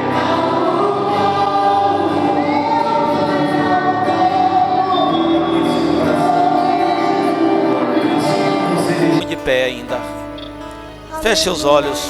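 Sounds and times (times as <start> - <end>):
vocal group singing: 0.0 - 10.4, 11.0 - 12.0
instrumental backing: 3.4 - 12.0.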